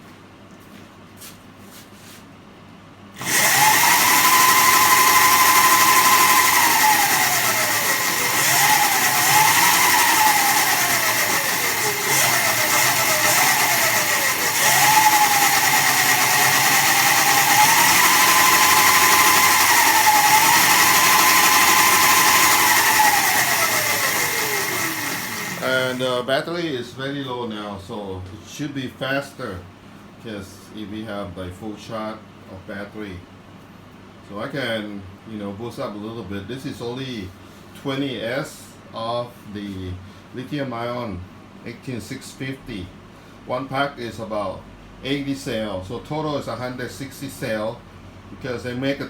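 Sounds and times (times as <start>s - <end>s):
electric motor whine: 3.2s - 26.1s
steady drive hiss: 3.2s - 29.6s.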